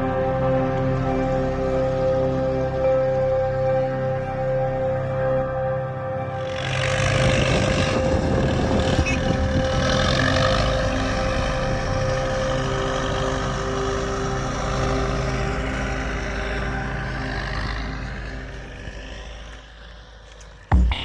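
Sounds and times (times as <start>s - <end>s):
engine drone: 0.0s - 21.0s
rushing noise: 6.4s - 21.0s.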